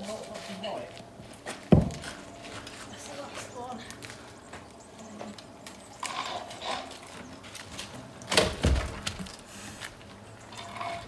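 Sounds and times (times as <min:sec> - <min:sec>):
log dropping with heavy thud: 0:08.3 - 0:09.4.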